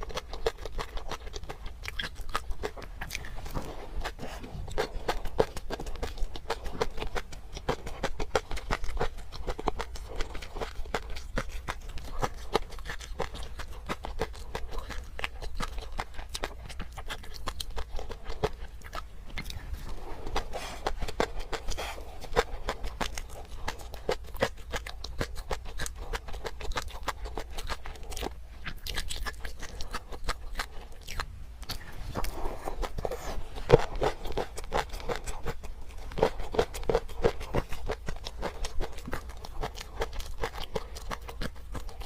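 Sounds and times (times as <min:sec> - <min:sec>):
wet chewing and crunching: 0:00.0 - 0:42.0.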